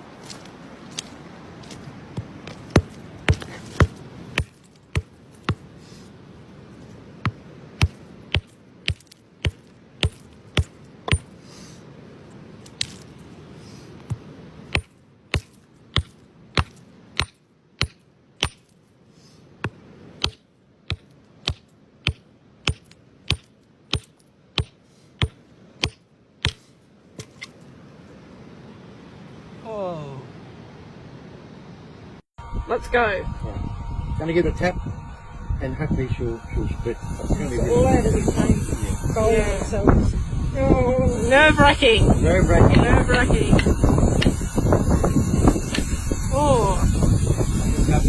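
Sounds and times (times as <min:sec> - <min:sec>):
hammer tapping on rock: 0:02.2 - 0:05.7, 0:07.2 - 0:11.3, 0:14.0 - 0:18.7, 0:19.6 - 0:26.6.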